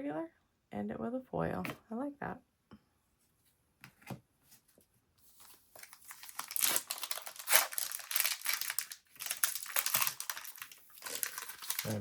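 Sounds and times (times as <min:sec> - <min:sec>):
foil wrapper crinkling and tearing: 0:05.8 - 0:12.0.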